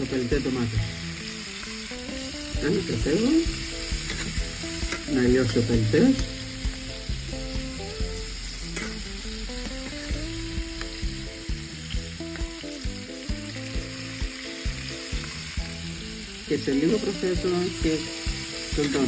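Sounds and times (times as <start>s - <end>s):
food sizzling in a pan: 0.0s - 19.0s
soft background music: 0.0s - 19.0s
spatula scraping a pan: 3.5s - 6.5s.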